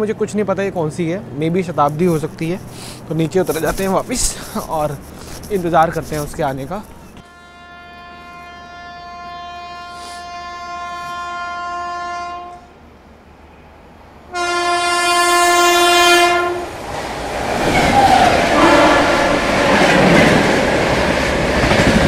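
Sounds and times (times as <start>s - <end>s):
train horn blasts: 7.2s - 12.9s, 14.3s - 16.8s, 17.6s - 19.6s
train rushing past with wheel clatter: 12.0s - 22.0s.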